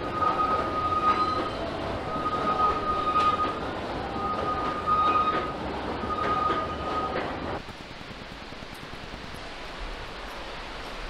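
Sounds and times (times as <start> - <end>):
high squeal: 0.0 - 3.6
train rumble: 0.0 - 11.0.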